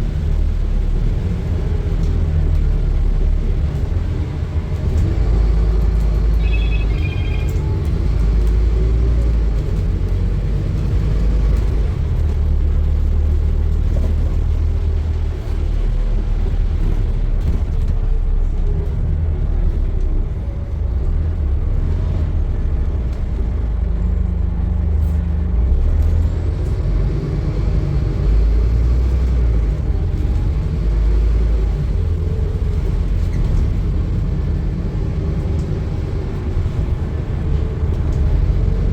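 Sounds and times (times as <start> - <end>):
bus engine rumble: 0.0 - 38.9
high beeps: 6.4 - 7.6.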